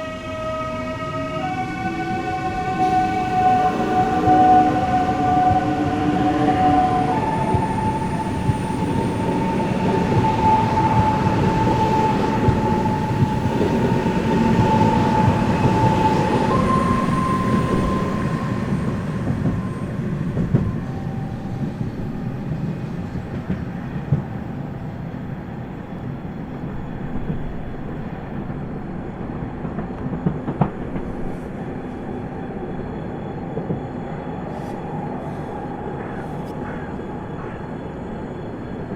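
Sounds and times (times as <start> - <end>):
electric train inverters whining: 0.0 - 22.7
wheels rumbling on rail: 0.1 - 38.8.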